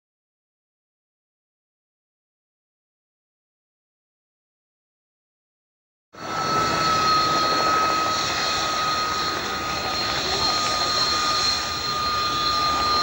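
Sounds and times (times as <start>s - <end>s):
aircraft engine rush and whine: 6.2s - 13.0s.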